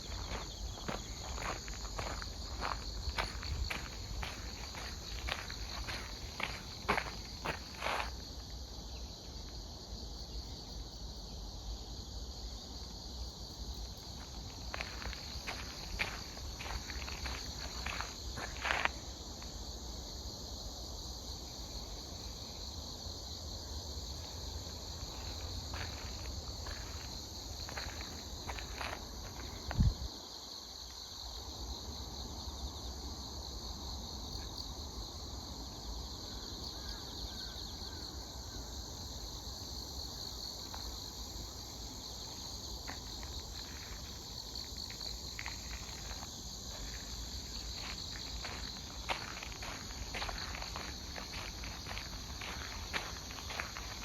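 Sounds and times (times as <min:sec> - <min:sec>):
footsteps on path: 0:00.0 - 0:08.6, 0:14.0 - 0:19.6, 0:24.2 - 0:30.0, 0:42.3 - 0:54.0
insects chirping in grass: 0:00.0 - 0:54.0.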